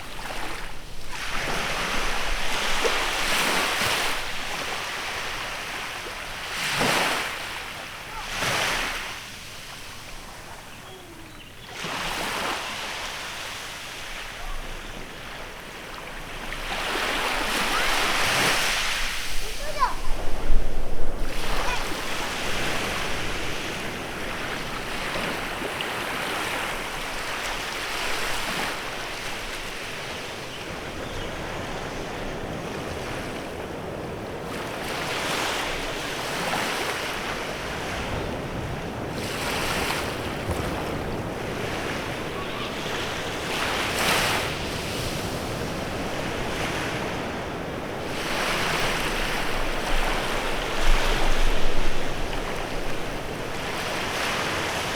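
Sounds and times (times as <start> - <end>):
small waves breaking on beach: 0.0 - 54.9
wind on microphone: 16.8 - 25.7.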